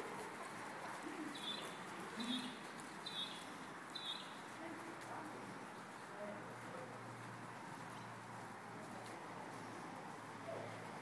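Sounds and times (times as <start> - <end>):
small bird chirping: 1.3 - 4.4.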